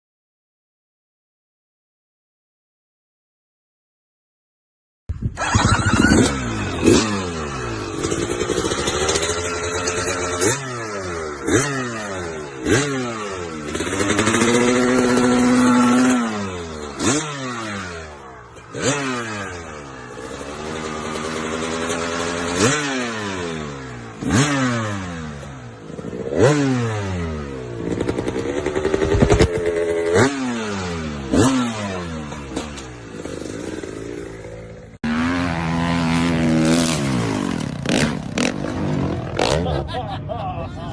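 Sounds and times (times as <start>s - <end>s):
motorcycle engines revving: 5.4s - 40.9s.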